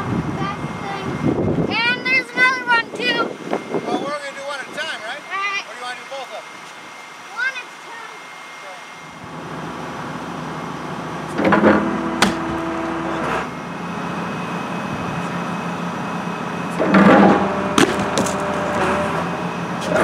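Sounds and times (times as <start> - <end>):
excavator hydraulics running: 9.1 - 20.0
sharp crack: 12.2 - 12.5.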